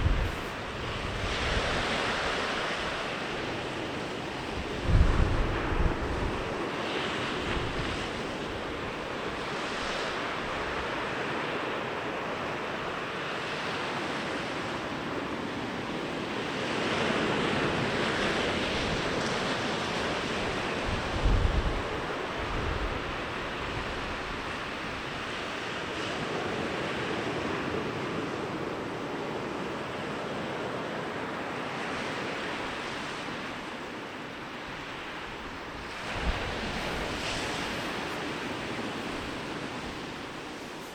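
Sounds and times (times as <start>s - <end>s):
wind buffeting microphone: 0.0s - 3.7s, 4.4s - 6.7s, 17.9s - 25.2s, 35.2s - 40.9s
waves breaking on a beach: 0.0s - 40.9s.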